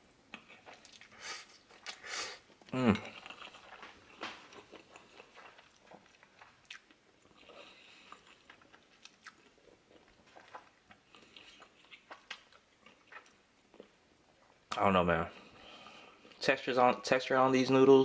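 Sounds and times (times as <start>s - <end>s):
faint chewing of noodles: 0.2s - 16.4s
soft mouth clicks and smacks: 3.2s - 7.0s.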